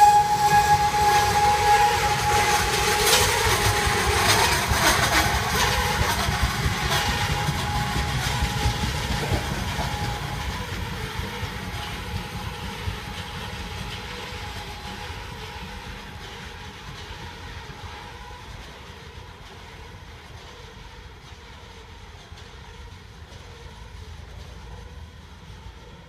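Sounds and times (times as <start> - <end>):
freight train rolling on rails: 0.0 - 26.0.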